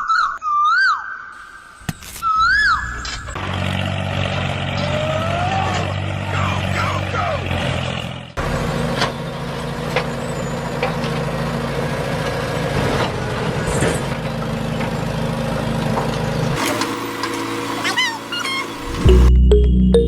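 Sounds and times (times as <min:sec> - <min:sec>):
short gliding squeals: 0:02.0 - 0:03.4, 0:16.6 - 0:19.3
heavy vehicle engine running: 0:03.1 - 0:20.0.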